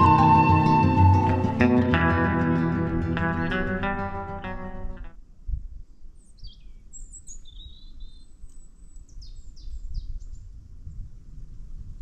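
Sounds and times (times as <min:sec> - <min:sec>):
small birds chirping: 0:06.2 - 0:10.5.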